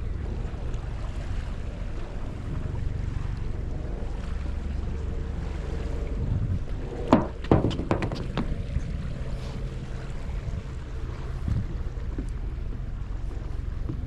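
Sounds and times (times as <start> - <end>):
wind rumbling on microphone: 0.0 - 14.0
loud knocks: 7.1 - 8.6.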